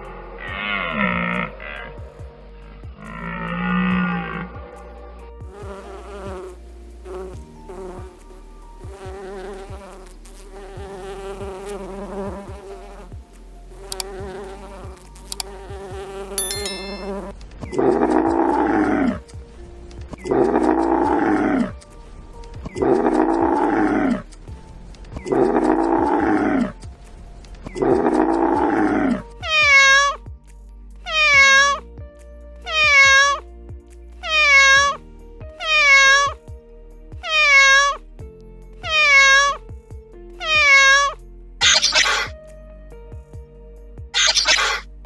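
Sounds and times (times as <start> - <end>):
soft background music: 0.0 - 45.0
animal calls: 16.4 - 17.2, 29.4 - 30.2, 31.1 - 31.8, 32.7 - 33.4, 34.2 - 35.0, 35.6 - 36.4, 37.2 - 38.0, 38.8 - 39.6, 40.4 - 42.3, 44.2 - 44.8.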